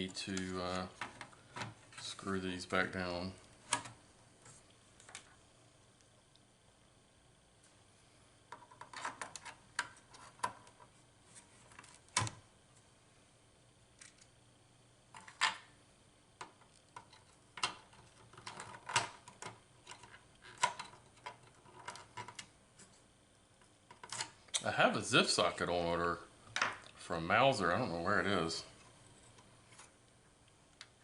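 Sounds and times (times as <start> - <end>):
hardware being handled: 16.4 - 23.0.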